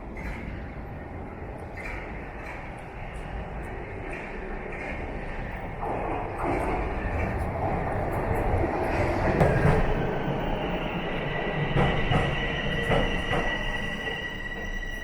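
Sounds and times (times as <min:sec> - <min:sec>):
train wheels squealing: 0:00.0 - 0:05.8, 0:09.5 - 0:15.0
subway train rumbling: 0:00.0 - 0:15.0.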